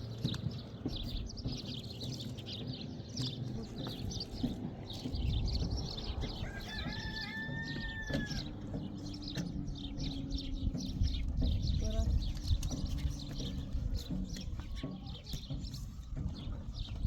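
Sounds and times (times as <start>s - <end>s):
small birds chirping: 0.0s - 17.0s
rooster crowing: 6.4s - 8.6s.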